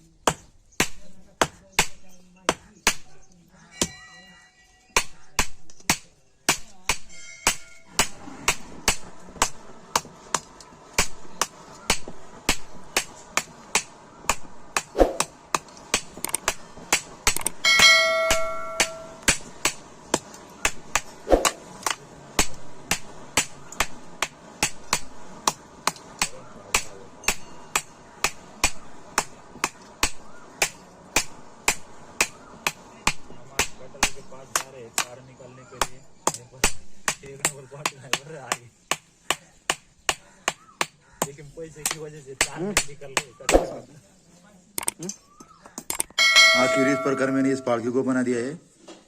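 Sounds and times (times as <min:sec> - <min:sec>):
bell-like metallic ring: 0:03.7 - 0:04.8, 0:07.1 - 0:07.9, 0:17.6 - 0:19.2, 0:46.2 - 0:47.9
hammer striking metal on anvil: 0:03.8 - 0:04.2, 0:06.5 - 0:10.4, 0:11.0 - 0:35.1, 0:46.1 - 0:47.8.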